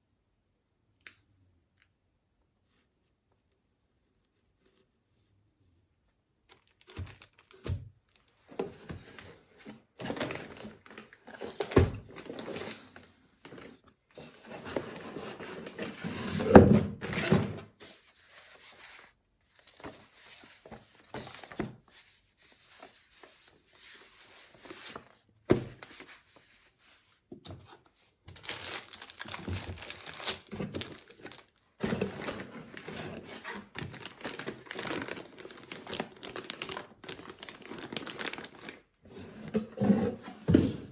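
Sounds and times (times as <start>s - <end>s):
plastic crinkling: 6.5s - 9.2s, 28.3s - 39.0s.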